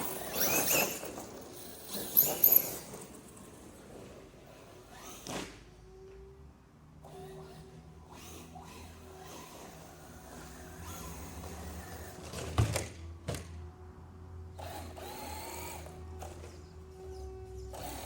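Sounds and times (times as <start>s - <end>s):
electric motor whining: 0.0s - 2.9s, 7.0s - 12.3s, 14.6s - 18.0s.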